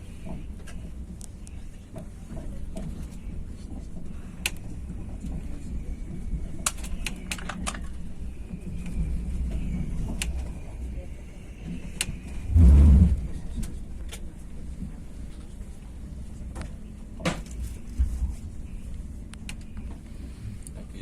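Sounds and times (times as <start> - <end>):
train rumbling: 0.0 - 21.0
heavy low thump: 12.5 - 13.4.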